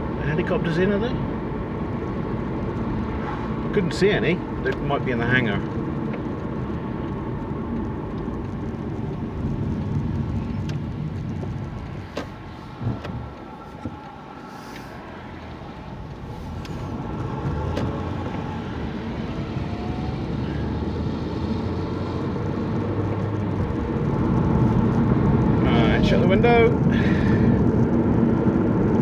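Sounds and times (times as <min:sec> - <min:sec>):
car engine and road rumble: 0:00.0 - 0:29.0.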